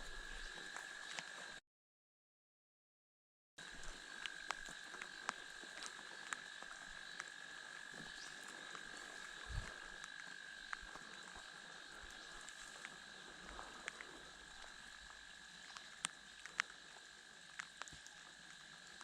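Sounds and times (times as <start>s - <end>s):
chorus of calling frogs: 0.0s - 1.6s, 3.6s - 19.0s
dripping water ticks: 3.6s - 19.0s.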